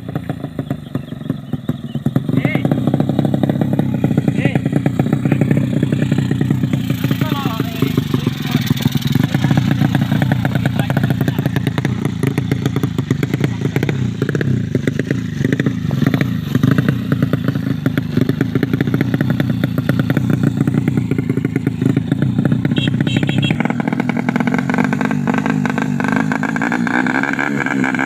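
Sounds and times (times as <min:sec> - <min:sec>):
motorcycle engine running: 0:00.0 - 0:28.0
person talking: 0:07.1 - 0:08.8.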